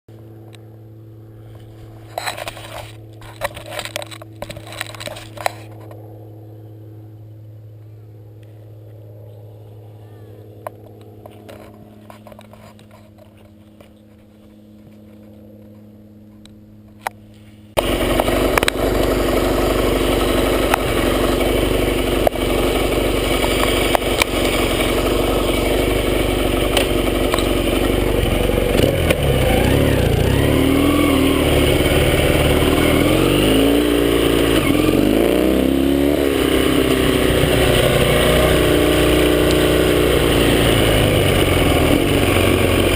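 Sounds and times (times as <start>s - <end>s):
motorcycle engine revving: 17.7s - 42.9s
clicks: 18.2s - 19.1s.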